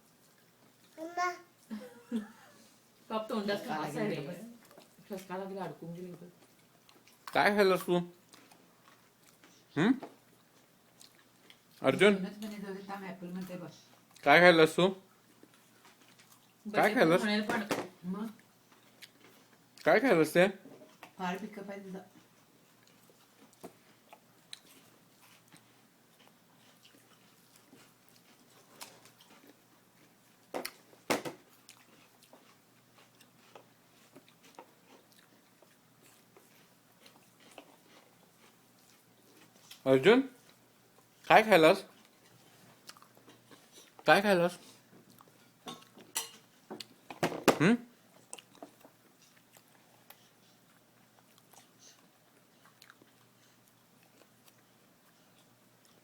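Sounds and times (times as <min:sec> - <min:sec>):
apple chewing: 0:22.2 - 0:41.3, 0:47.6 - 0:56.0.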